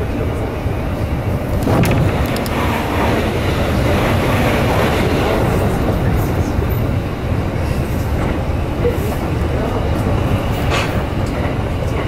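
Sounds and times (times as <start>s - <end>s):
passing train rush of air: 0.0s - 12.0s
train interior rumble: 0.0s - 12.0s.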